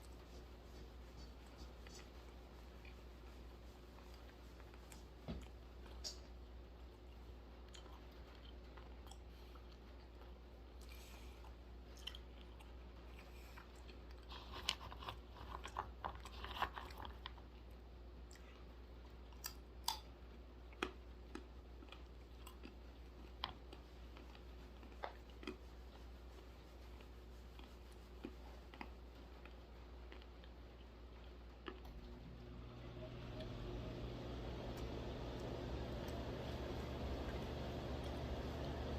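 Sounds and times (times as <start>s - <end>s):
steady low hum: 0.0s - 15.8s, 17.3s - 38.9s
chewing crunchy nuts: 7.0s - 26.2s, 26.9s - 32.0s.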